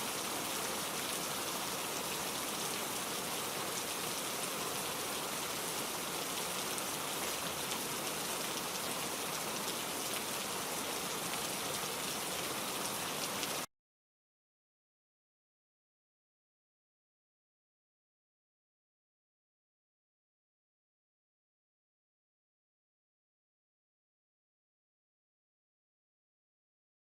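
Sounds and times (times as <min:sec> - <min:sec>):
steady rain patter: 0:00.0 - 0:13.7.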